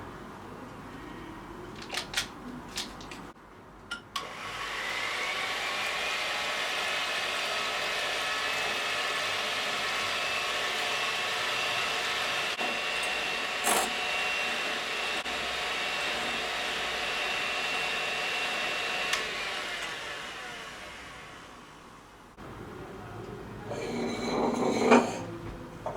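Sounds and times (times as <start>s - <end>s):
electric mixer whining: 4.2s - 22.0s.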